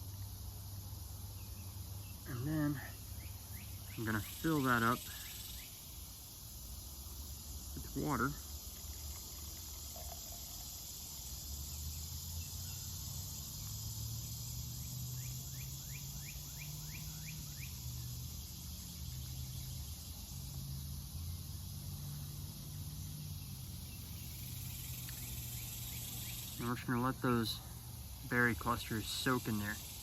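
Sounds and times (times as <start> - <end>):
crickets and insects chirping: 0.0 - 30.0.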